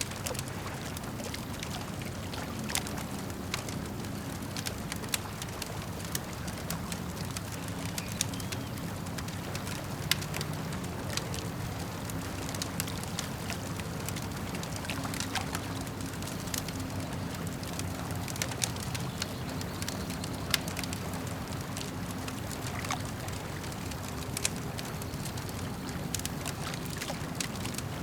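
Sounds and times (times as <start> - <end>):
campfire crackling and popping: 0.0 - 28.0
water lapping at shore: 0.0 - 28.0.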